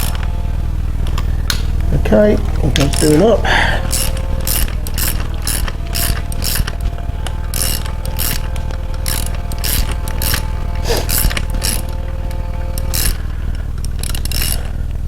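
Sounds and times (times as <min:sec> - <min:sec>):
socket ratchet clicking: 0:03.8 - 0:14.8.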